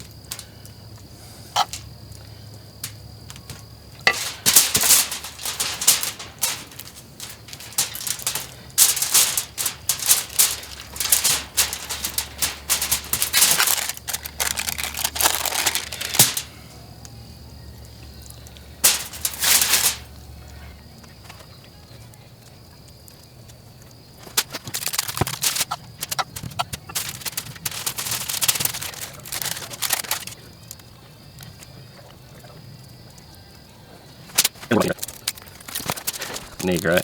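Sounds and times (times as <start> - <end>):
rapid clicking and crackling: 0.0 - 0.7, 1.6 - 16.6, 18.3 - 20.1, 24.2 - 31.0, 34.3 - 37.0.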